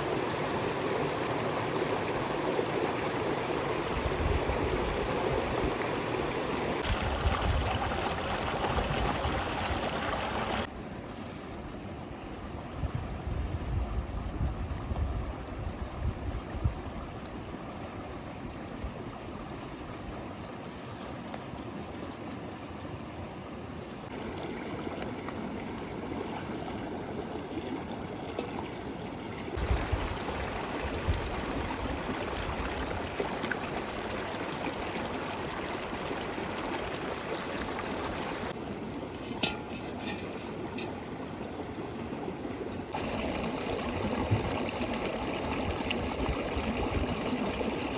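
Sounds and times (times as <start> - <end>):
river water flowing: 4.7 - 11.4, 19.2 - 47.9.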